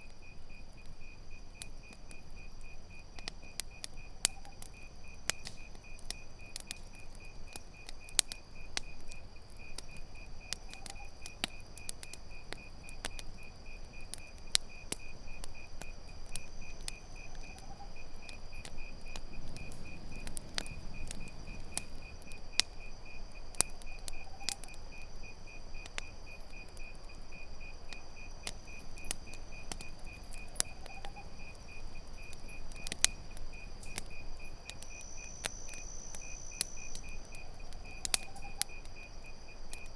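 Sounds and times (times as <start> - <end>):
campfire crackling and popping: 0.0 - 39.9
crickets chirping: 0.0 - 39.9
high insect drone: 13.2 - 39.9.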